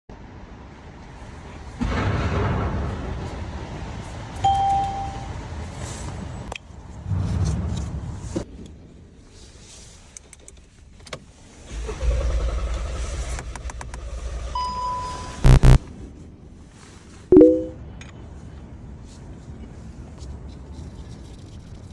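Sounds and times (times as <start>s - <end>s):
short electronic beep: 4.5s - 5.4s, 14.6s - 15.8s, 17.3s - 17.8s.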